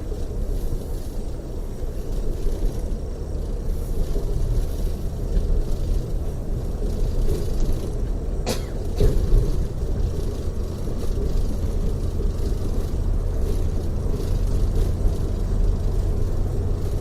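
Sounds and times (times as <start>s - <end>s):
bus engine and tyre rumble: 0.0s - 17.0s.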